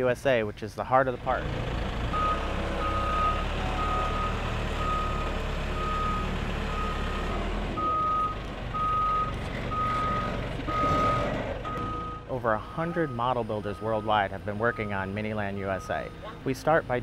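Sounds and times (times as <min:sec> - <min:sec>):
low engine rumble: 0:00.0 - 0:17.0
backup alarm beeping: 0:02.2 - 0:12.3.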